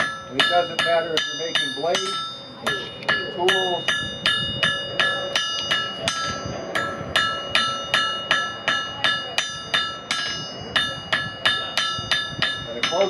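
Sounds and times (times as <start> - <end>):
hammer striking metal on anvil: 0.0 - 13.0.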